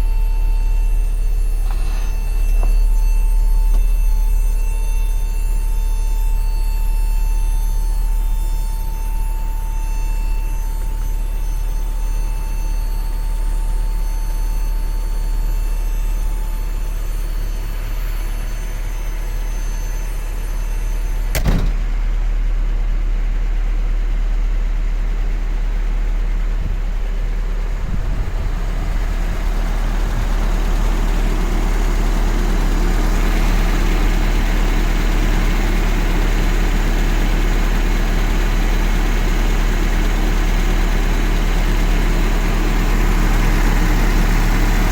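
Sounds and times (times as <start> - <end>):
truck engine idling: 0.0 - 44.9
sharp knock: 21.3 - 21.9.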